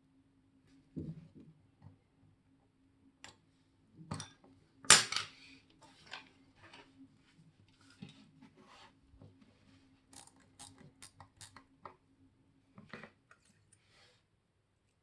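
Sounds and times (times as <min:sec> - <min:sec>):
metallic clicks of small hand tools: 0:10.2 - 0:11.6.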